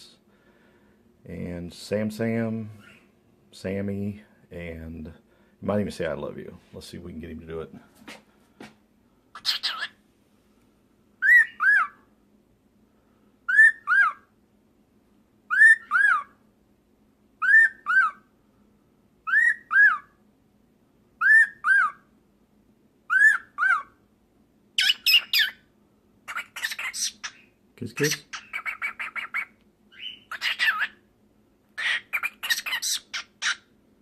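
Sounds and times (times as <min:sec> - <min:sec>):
cockatiel chattering: 0:09.4 - 0:10.0, 0:24.8 - 0:25.6, 0:26.3 - 0:27.4, 0:28.0 - 0:31.0, 0:31.8 - 0:33.7
cockatiel whistling: 0:11.2 - 0:12.0, 0:13.5 - 0:14.3, 0:15.5 - 0:16.3, 0:17.4 - 0:18.2, 0:19.2 - 0:20.1, 0:21.2 - 0:22.0, 0:23.1 - 0:23.9, 0:24.8 - 0:25.6, 0:28.0 - 0:31.0.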